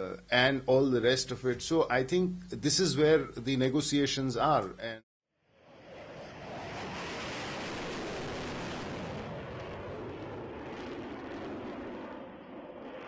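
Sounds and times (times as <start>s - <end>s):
jet aircraft engine rushing: 5.6s - 13.0s.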